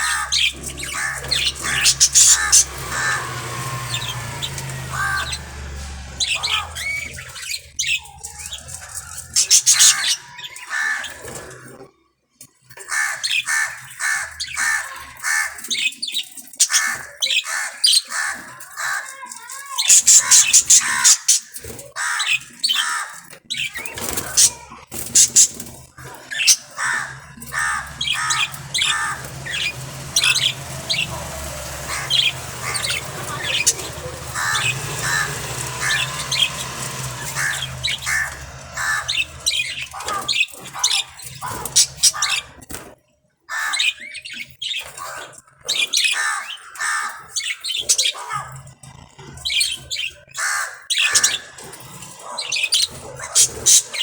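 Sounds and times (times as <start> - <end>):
budgerigars chirping and squawking: 0.0 - 11.8, 12.8 - 42.9, 43.5 - 54.0.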